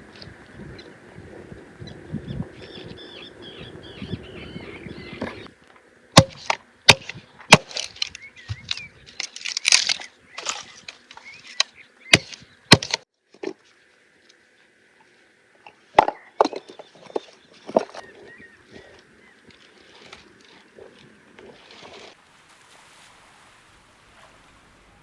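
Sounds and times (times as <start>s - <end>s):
sharp cracks and knocks: 6.2s - 13.6s
rustling handling noise: 7.5s - 11.6s.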